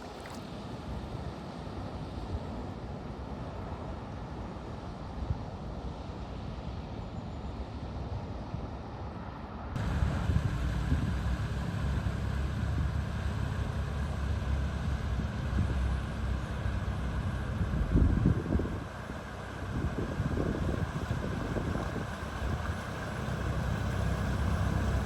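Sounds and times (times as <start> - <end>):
water washing: 0.0 - 0.7
wind noise on microphone: 9.8 - 11.6, 17.6 - 25.0
vehicle engine rumble: 9.8 - 25.0.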